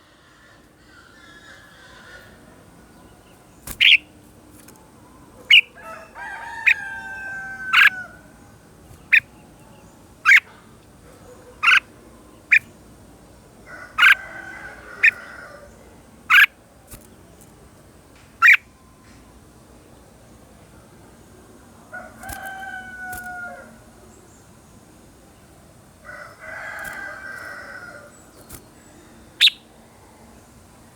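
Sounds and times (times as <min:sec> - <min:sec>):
rooster crowing: 0:05.8 - 0:08.4, 0:13.7 - 0:15.7, 0:21.9 - 0:23.8, 0:26.0 - 0:28.2.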